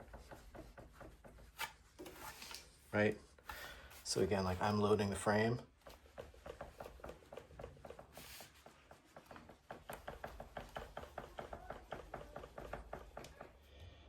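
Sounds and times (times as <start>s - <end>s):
bike frame knocking: 5.8s - 13.6s.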